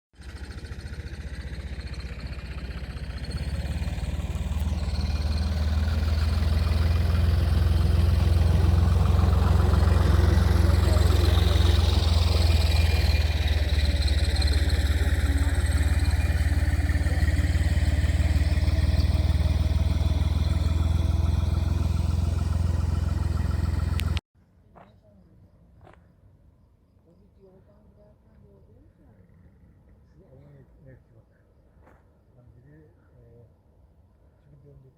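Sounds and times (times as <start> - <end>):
motor engine running: 0.2 - 24.2.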